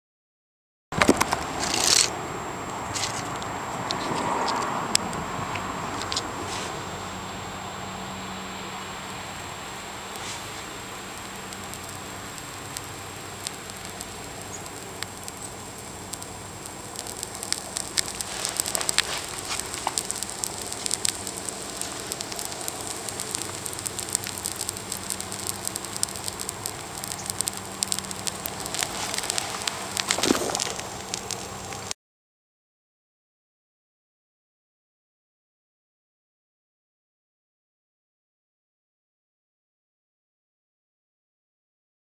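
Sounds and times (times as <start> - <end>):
electronics burning with hiss and pops: 1.0 - 32.0.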